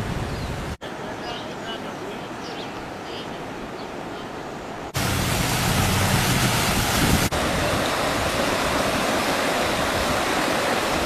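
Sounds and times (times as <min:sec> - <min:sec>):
fast-moving water rushing: 0:04.9 - 0:11.0.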